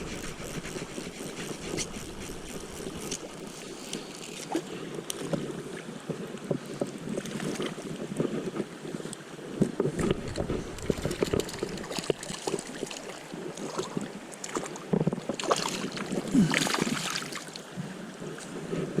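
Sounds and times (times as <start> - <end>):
wind on microphone: 0.0 - 19.0
river water splashing: 10.0 - 18.5.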